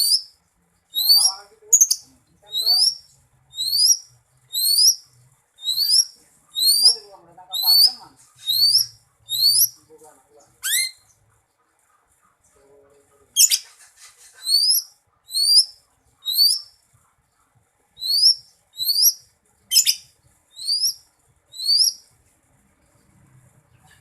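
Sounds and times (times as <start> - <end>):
bird whistling song: 0.0 - 0.3, 0.9 - 5.0, 5.6 - 9.8, 10.6 - 11.1, 13.4 - 13.7, 14.4 - 16.7, 18.0 - 22.1.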